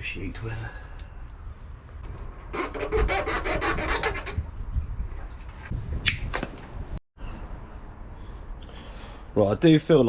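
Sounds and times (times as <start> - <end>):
rasping scraping strokes: 2.5 - 4.5.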